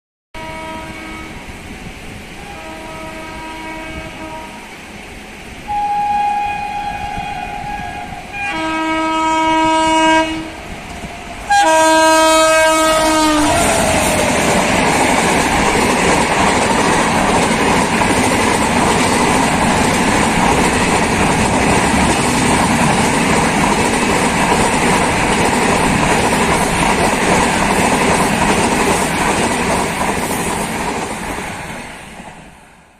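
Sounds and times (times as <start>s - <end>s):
locomotive horn blasts: 0.4s - 1.4s, 2.4s - 4.7s, 5.7s - 10.7s, 11.5s - 13.9s
train rushing past on rails: 0.4s - 32.9s.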